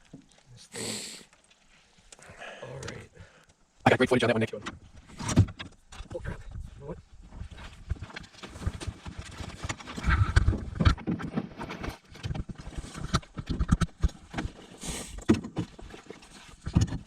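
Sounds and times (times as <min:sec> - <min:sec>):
rustling hiss: 0:00.0 - 0:03.4.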